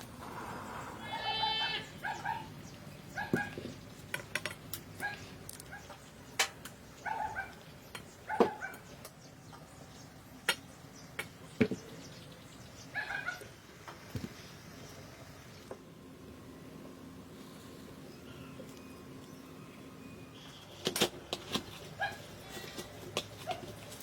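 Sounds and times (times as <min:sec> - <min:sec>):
goat bleating: 0:01.0 - 0:02.0.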